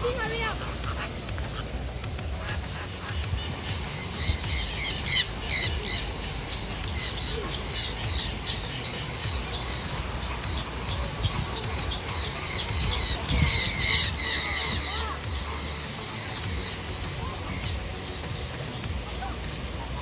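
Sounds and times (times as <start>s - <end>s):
birds squawking and calling: 0.0s - 20.0s
low background rumble: 0.0s - 20.0s.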